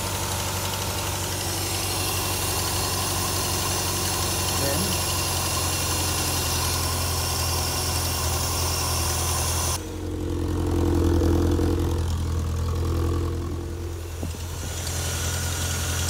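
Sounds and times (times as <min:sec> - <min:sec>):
car engine idling: 0:00.0 - 0:16.0
hiss: 0:00.1 - 0:09.8, 0:14.2 - 0:16.0.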